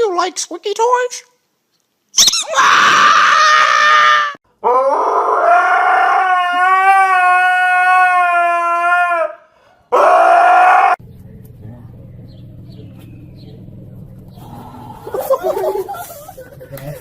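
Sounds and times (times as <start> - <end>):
dog howling: 2.4 - 15.8.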